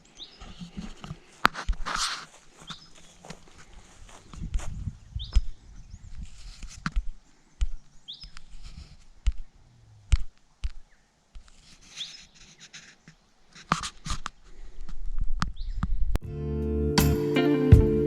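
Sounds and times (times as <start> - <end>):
bird chirping: 0.0 - 1.0, 2.6 - 3.4, 4.8 - 6.4, 7.0 - 8.7, 9.3 - 11.2, 15.5 - 16.1.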